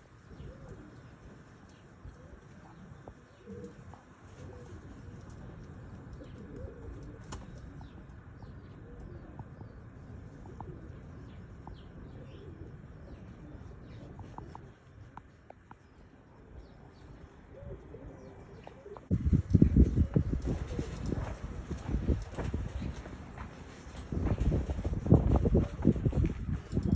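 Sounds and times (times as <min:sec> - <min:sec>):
pigeons cooing: 0:00.1 - 0:23.5.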